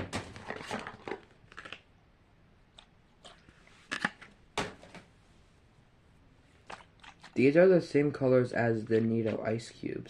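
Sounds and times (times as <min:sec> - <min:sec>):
cardboard and plastic rustling: 0:00.0 - 0:01.4.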